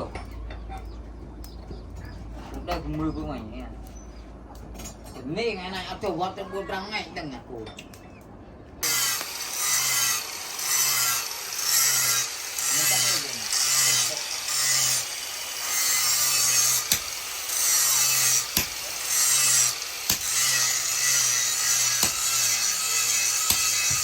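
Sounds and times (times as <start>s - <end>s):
hand saw cutting steel: 8.8s - 24.0s.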